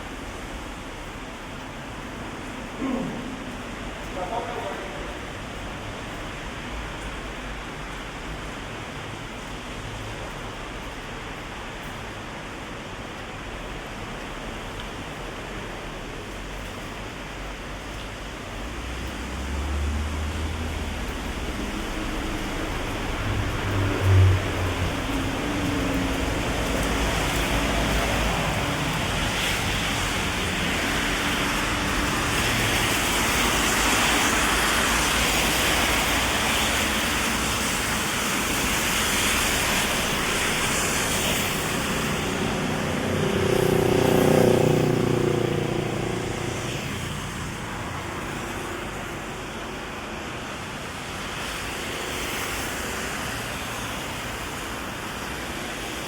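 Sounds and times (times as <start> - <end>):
heavy rain hissing: 0.0 - 56.0
traffic on wet road: 0.0 - 56.0
vehicle passing close by: 18.7 - 38.0, 38.6 - 49.0.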